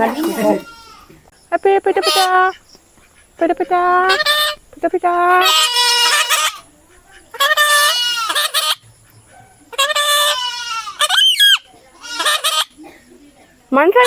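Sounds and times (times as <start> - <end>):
bird calling harshly: 5.4 - 12.8.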